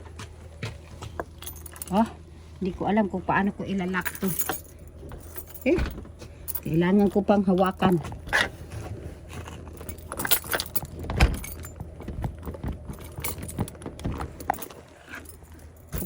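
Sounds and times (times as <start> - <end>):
handling clatter: 0.5 - 2.3, 3.8 - 16.0
keys jangling: 1.2 - 2.1, 4.0 - 8.0, 9.4 - 16.0.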